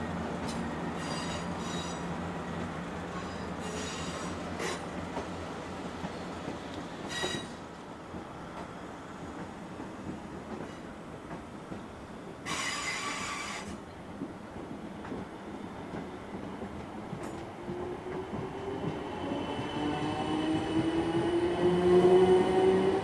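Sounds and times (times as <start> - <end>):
train rumbling on tracks: 0.0 - 23.0
high squeal: 7.1 - 7.6.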